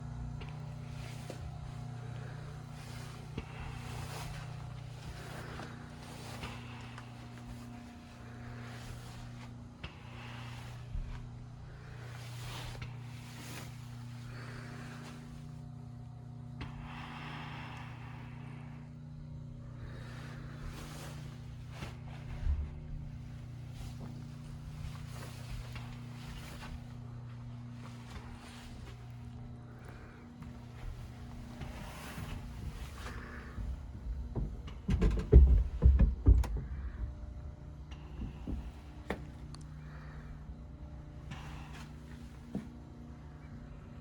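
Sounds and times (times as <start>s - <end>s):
machinery humming: 0.0s - 44.0s.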